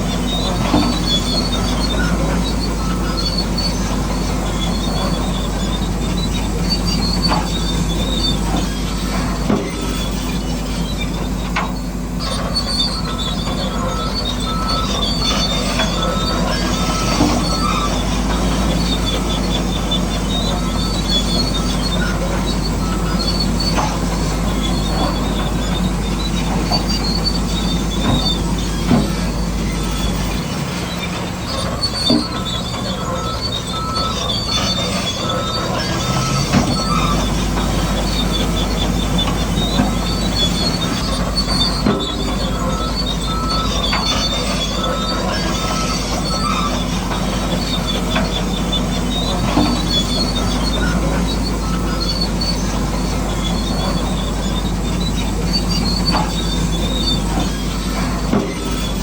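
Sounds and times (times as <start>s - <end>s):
bulldozer engine running: 0.0s - 59.0s
crawler tracks squealing: 0.0s - 59.0s
metal clanks and knocks: 14.6s - 59.0s.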